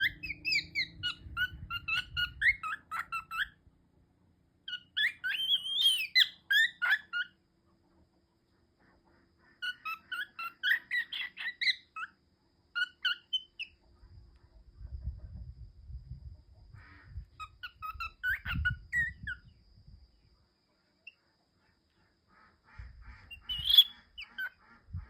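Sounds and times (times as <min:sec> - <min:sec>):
cockatiel chirping and whistling: 0:00.0 - 0:03.6, 0:04.7 - 0:07.4, 0:09.6 - 0:12.2, 0:12.8 - 0:13.8, 0:17.4 - 0:19.4, 0:23.4 - 0:24.6.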